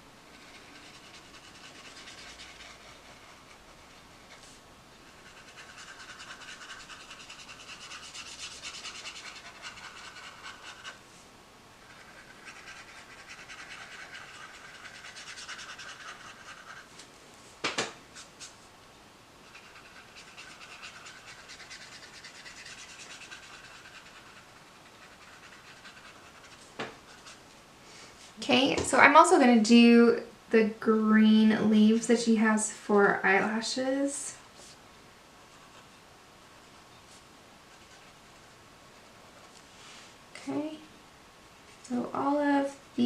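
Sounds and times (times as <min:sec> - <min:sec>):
marker tip rubbing on paper: 0:00.3 - 0:11.0, 0:11.8 - 0:16.9, 0:19.4 - 0:27.4.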